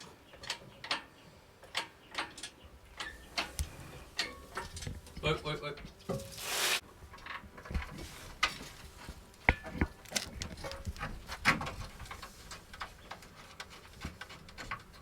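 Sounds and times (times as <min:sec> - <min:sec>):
short rushing hiss: 0:06.3 - 0:06.8.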